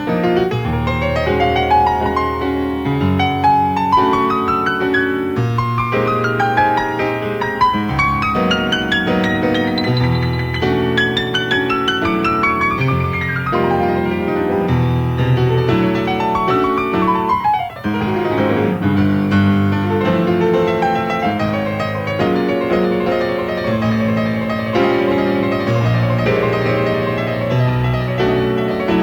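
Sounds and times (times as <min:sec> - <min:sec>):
jazz piano: 0:00.0 - 0:29.0.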